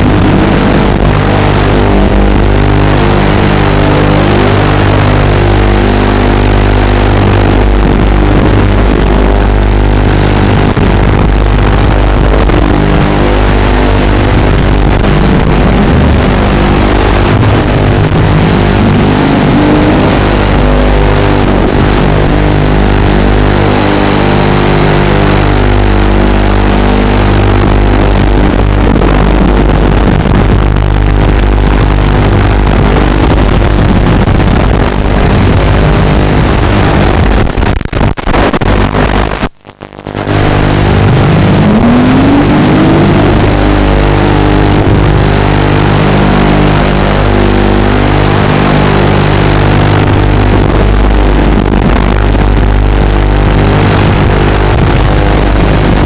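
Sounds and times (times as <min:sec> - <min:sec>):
drone motors whining: 0:00.0 - 0:33.6.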